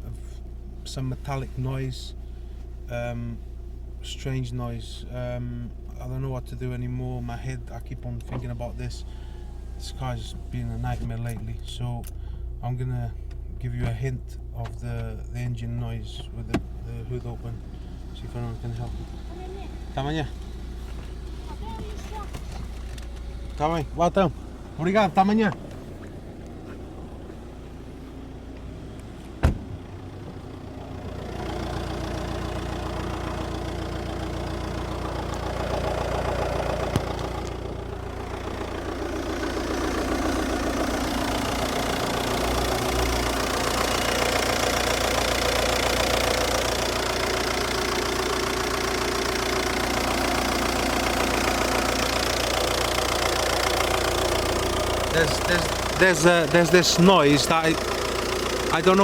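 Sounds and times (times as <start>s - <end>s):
diesel engine idling: 0.0s - 59.0s
metallic engine noise: 29.9s - 59.0s.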